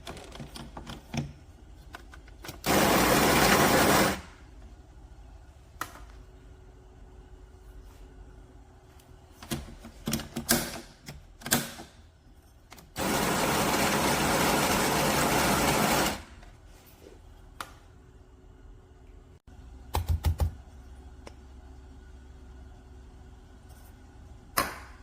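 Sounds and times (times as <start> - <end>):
espresso machine running: 2.7 - 4.2, 13.0 - 16.3.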